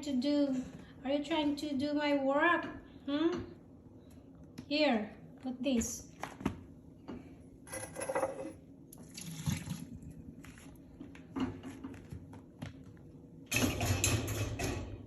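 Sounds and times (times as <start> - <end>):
dishes clinking: 7.7 - 8.6
water splashing in a sink: 9.0 - 10.1.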